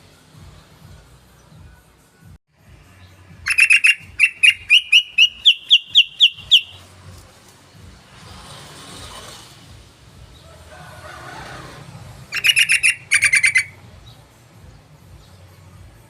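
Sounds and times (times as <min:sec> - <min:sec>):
bird chattering calls: 0:03.5 - 0:06.8, 0:12.3 - 0:13.8.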